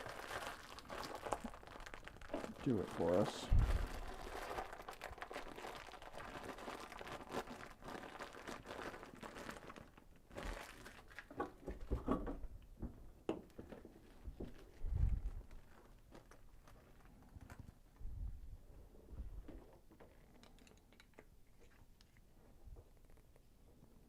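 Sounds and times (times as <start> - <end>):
plastic bag crinkling: 0.0 - 11.9, 13.6 - 18.0
small parts knocking and clicking: 19.9 - 21.4.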